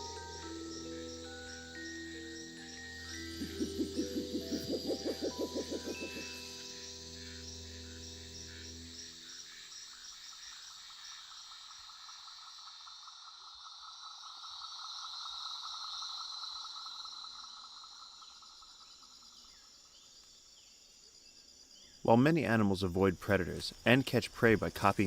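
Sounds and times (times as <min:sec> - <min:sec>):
held musical chord: 0:00.0 - 0:09.5
insects trilling: 0:00.0 - 0:25.0.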